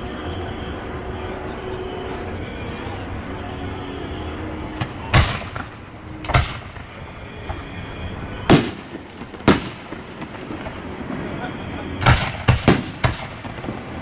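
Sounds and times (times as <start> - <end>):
fireworks booming with echo: 0.0 - 14.0
firework crack: 4.7 - 14.0.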